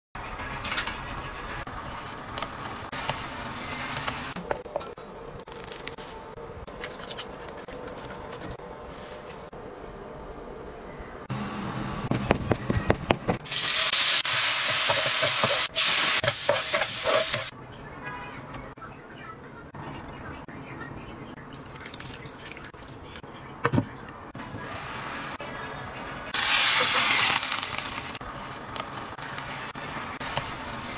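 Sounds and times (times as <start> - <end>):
chilies sizzling in hot oil: 13.5 - 17.5, 26.3 - 29.1.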